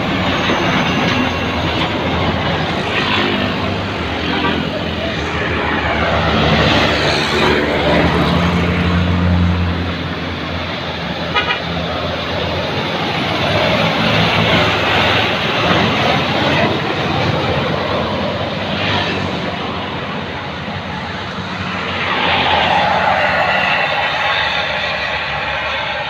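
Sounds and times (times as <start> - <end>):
road and wind noise: 0.0 - 26.0
truck horn toot: 11.3 - 11.8.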